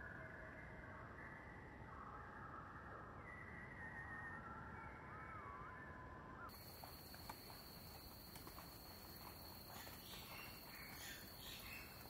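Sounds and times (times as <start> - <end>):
faint bird calls: 6.5 - 12.0.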